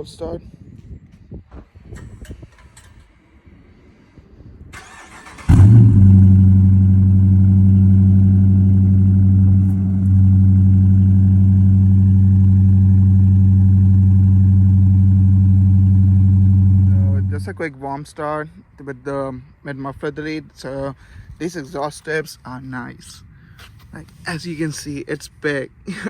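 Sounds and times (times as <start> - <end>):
car engine revving and idling: 4.9 - 17.6.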